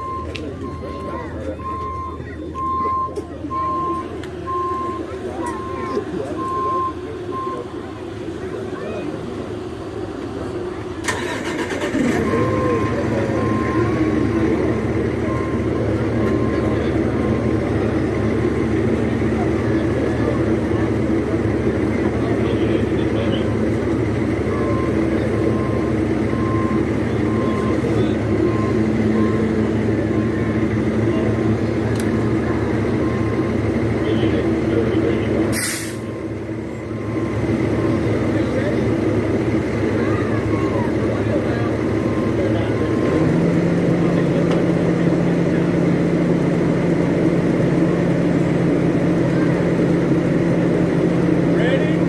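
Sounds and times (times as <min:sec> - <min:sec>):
reversing alarm beeping: 0:00.0 - 0:07.7, 0:11.1 - 0:18.1, 0:24.3 - 0:31.6, 0:32.5 - 0:38.9, 0:40.2 - 0:43.3
fire truck engine running: 0:00.0 - 0:52.0.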